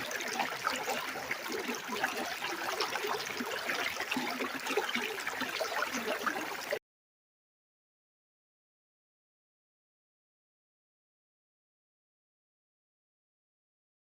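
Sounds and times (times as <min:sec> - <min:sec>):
stream water trickling: 0:00.0 - 0:06.8.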